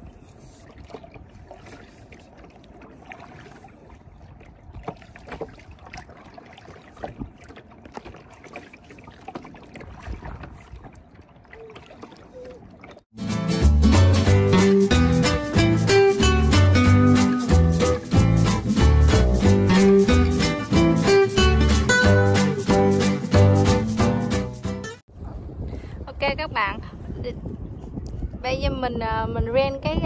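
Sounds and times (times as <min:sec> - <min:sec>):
paddle splashes and knocks: 0:00.0 - 0:13.1
water washing: 0:00.0 - 0:13.1
plucked guitar music: 0:13.2 - 0:25.0.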